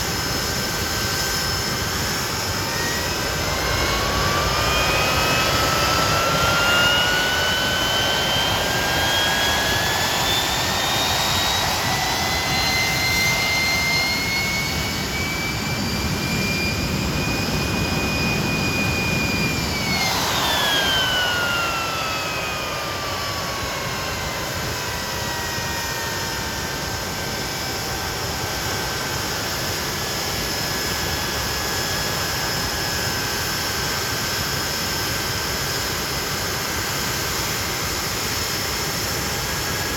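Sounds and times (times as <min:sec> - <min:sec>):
jet engine rushing roar: 0:00.0 - 0:39.9
jet engine whine: 0:00.0 - 0:39.9.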